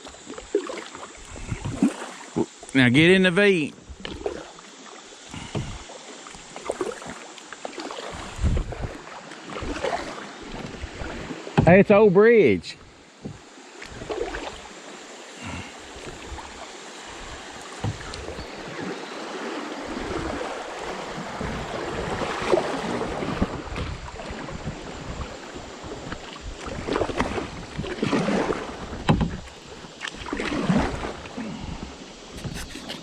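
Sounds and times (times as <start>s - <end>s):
paddle splashes: 0.0s - 11.8s, 12.8s - 33.0s
rushing river water: 0.0s - 33.0s.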